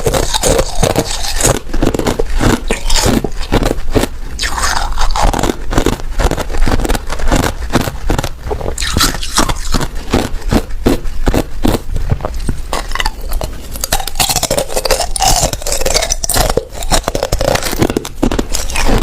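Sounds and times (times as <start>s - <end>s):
ice being chewed: 0.0s - 19.0s.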